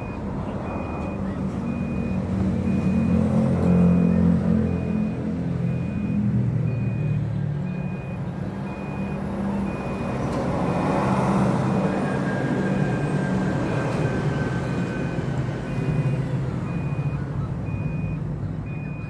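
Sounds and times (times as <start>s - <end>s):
reversing alarm beeping: 0.0s - 19.0s.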